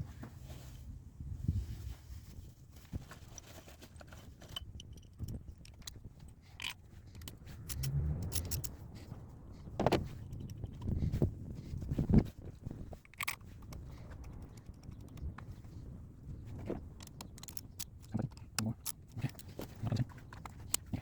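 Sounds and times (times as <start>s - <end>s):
metallic clinks and jingling: 4.4s - 9.1s.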